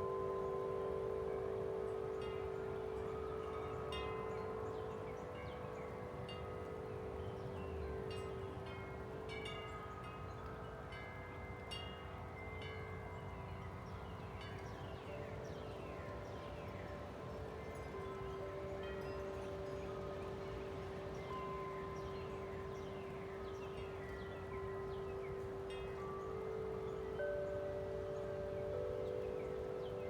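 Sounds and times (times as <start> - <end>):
tubular wind chimes ringing: 0.0 - 30.0.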